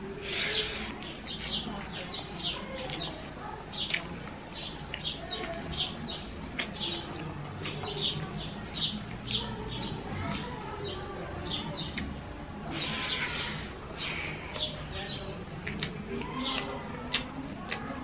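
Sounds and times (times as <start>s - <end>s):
small birds chirping: 0.2s - 18.0s.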